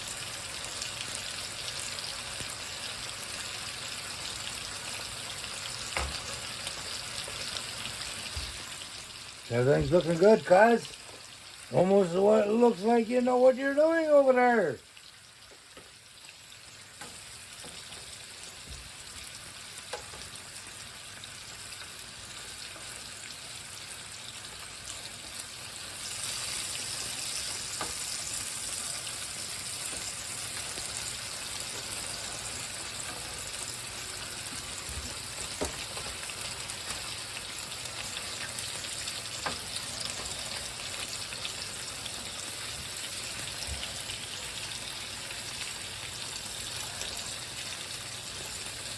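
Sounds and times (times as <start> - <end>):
bacon sizzling in a frying pan: 0.0 - 48.9.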